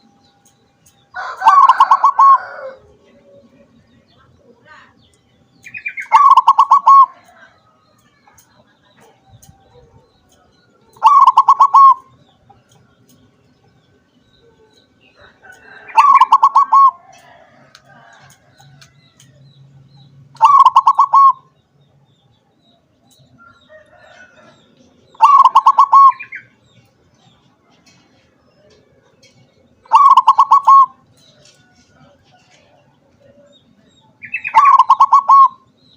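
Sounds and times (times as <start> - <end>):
dove cooing: 1.2 - 3.9, 6.0 - 7.4, 10.8 - 12.4, 14.4 - 18.2, 20.4 - 21.5, 23.9 - 26.6, 29.8 - 31.0, 34.2 - 35.7.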